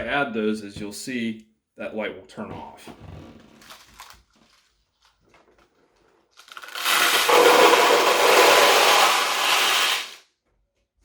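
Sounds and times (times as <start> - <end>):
metal balls clattering: 6.6 - 10.2.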